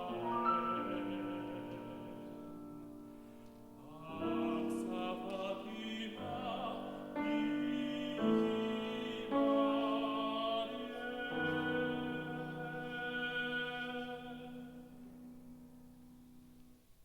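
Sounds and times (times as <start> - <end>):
piano accompaniment: 0.0 - 17.0
tenor singing operatically: 3.8 - 14.9.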